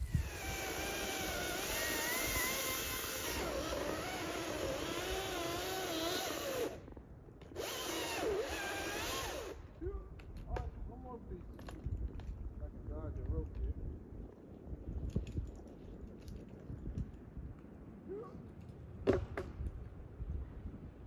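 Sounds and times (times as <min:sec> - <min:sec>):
power tool motor running: 0:00.0 - 0:06.8, 0:07.4 - 0:09.6.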